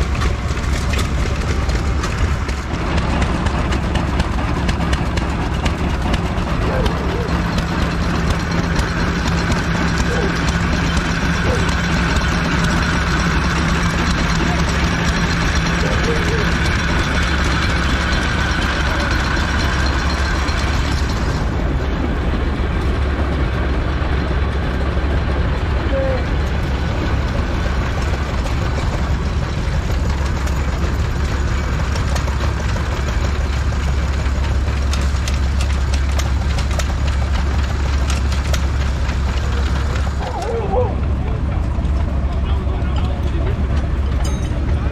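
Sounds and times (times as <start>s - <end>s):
stationary engine idling: 0.0s - 44.9s.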